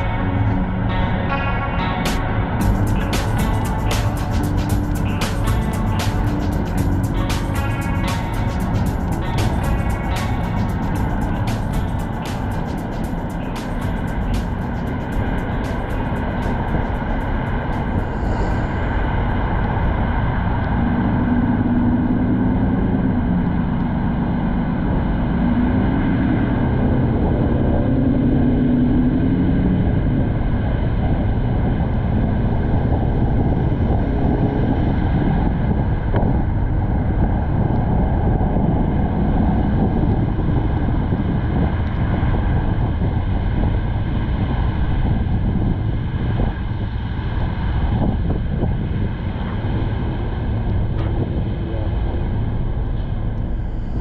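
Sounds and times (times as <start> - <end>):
low droning hum: 0.0 - 54.0
wind and road noise: 0.0 - 54.0.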